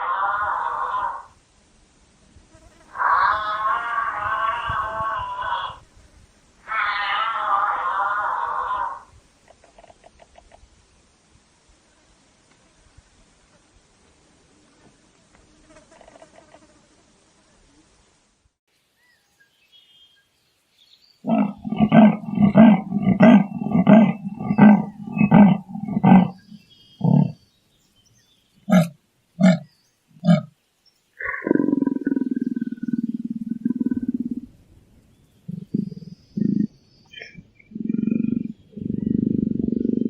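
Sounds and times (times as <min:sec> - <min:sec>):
large animal drawn-out call: 0:00.0 - 0:01.4, 0:02.8 - 0:05.8, 0:06.6 - 0:09.1, 0:21.2 - 0:27.4, 0:28.7 - 0:30.5, 0:31.2 - 0:34.5, 0:35.5 - 0:40.0
large animal grunting: 0:21.2 - 0:27.4, 0:28.7 - 0:30.5, 0:35.5 - 0:40.0.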